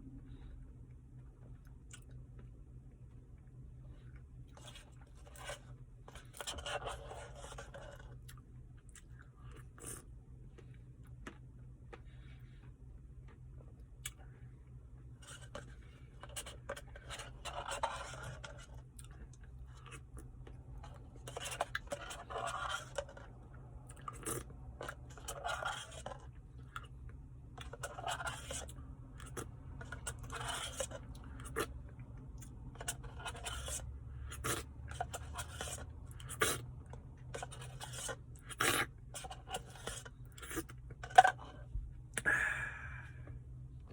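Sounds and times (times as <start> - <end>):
spoon scraping a cup: 29.8 - 31.7, 32.8 - 36.6, 37.4 - 41.5.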